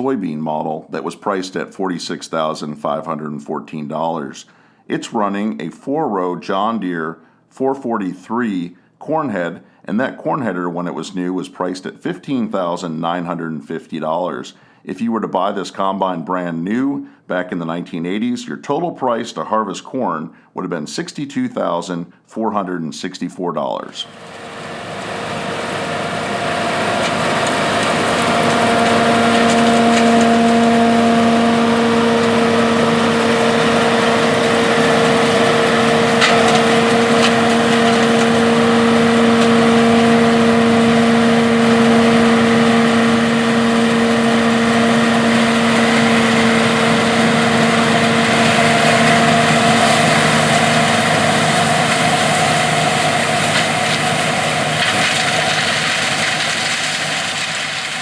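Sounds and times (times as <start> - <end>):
combine harvester drone and whine: 24.0 - 57.9.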